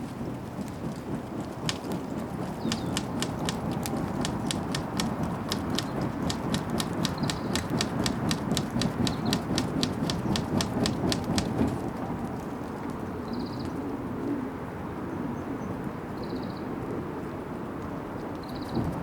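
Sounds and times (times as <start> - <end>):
flames rushing: 0.0 - 12.5, 18.7 - 19.0
bonfire crackling and popping: 0.7 - 12.5
bird chirping: 2.6 - 3.3, 7.1 - 7.8.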